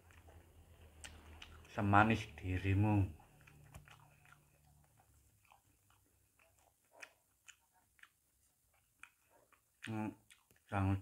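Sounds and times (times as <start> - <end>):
faint chewing of fruit: 0.0 - 11.0.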